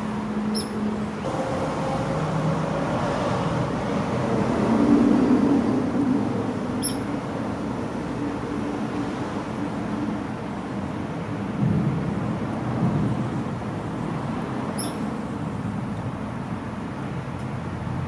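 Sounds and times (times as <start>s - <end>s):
traffic drone: 0.0s - 18.0s
short high-pitched chirp: 0.6s - 0.8s.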